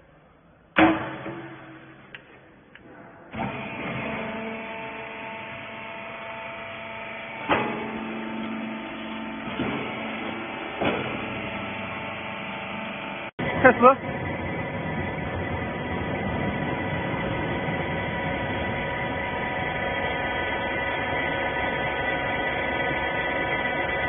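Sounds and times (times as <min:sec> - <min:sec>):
loud metallic clank: 0:00.8 - 0:02.2
baler motor humming: 0:03.3 - 0:24.0.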